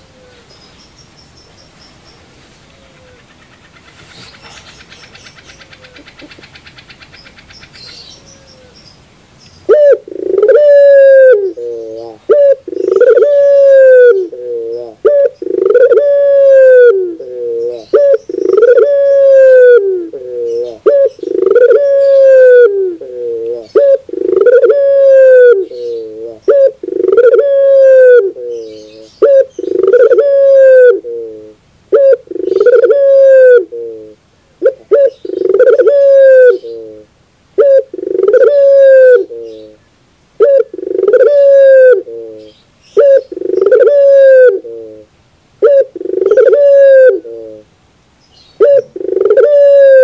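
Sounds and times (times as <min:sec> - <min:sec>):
dove cooing: 0:02.8 - 0:08.8, 0:09.7 - 0:39.8, 0:40.4 - 0:47.7, 0:48.5 - 0:50.0.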